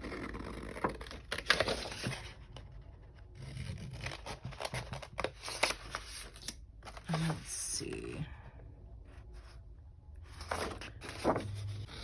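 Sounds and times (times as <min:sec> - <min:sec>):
paper rustling: 0:10.3 - 0:12.0.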